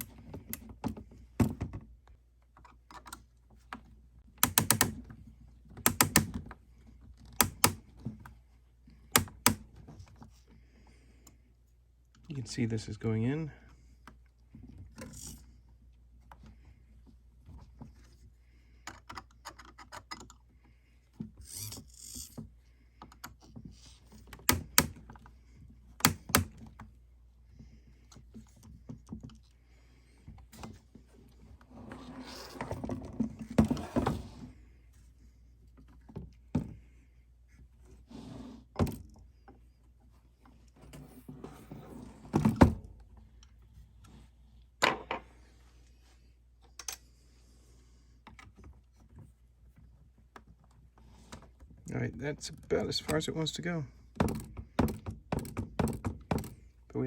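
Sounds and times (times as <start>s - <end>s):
clicks and knocks of parts handled: 0.0s - 8.4s, 18.8s - 20.5s, 21.1s - 26.9s
screws tightened by hand: 4.4s - 5.1s, 5.7s - 6.5s, 7.2s - 7.9s, 9.1s - 9.7s, 21.2s - 25.3s, 25.9s - 26.8s.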